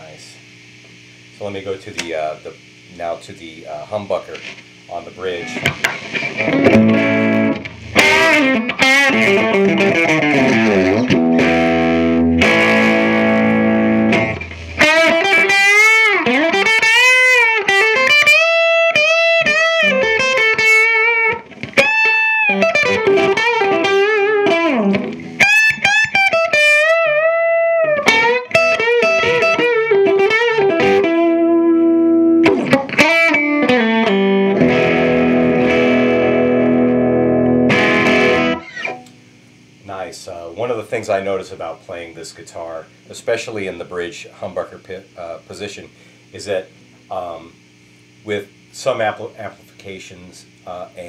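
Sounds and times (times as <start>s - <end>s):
electric guitar playing: 5.2s - 39.3s.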